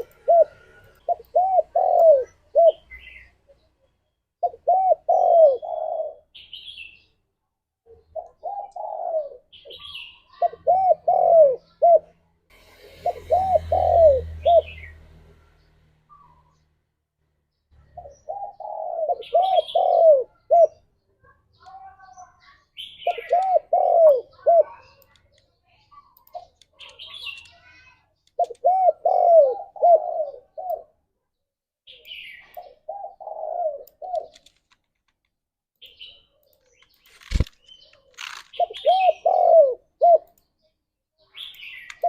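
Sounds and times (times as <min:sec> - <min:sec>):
dove cooing: 0:00.0 - 0:03.3, 0:04.4 - 0:06.4, 0:07.9 - 0:12.2, 0:12.8 - 0:15.0, 0:18.0 - 0:20.8, 0:23.0 - 0:25.0, 0:28.4 - 0:31.0, 0:32.6 - 0:34.5, 0:38.0 - 0:40.3.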